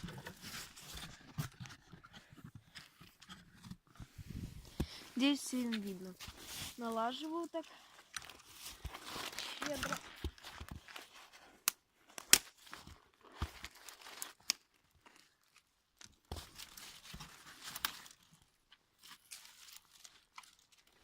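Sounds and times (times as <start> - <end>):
twigs snapping and rustling: 8.0 - 11.0, 11.6 - 21.0.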